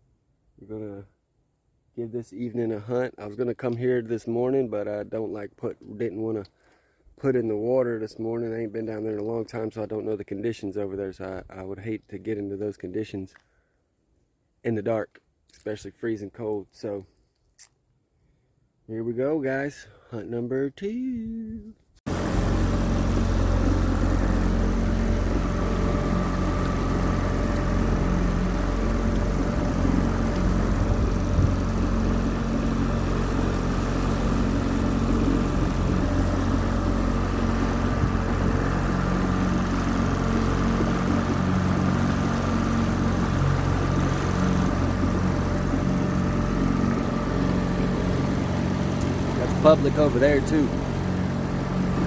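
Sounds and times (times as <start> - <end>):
outboard motor running: 22.1 - 52.0.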